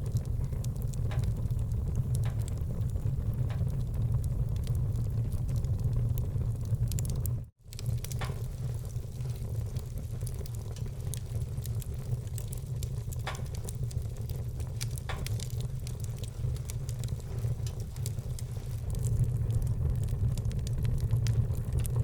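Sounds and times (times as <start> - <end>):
fire low rumble: 0.0 - 22.0
wood fire crackling and popping: 0.0 - 22.0.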